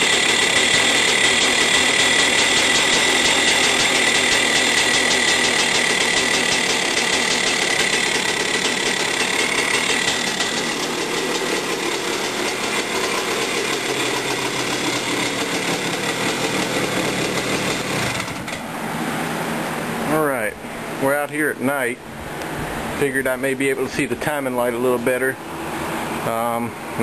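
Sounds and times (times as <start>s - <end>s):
dirt bike engine idling: 0.0s - 18.8s.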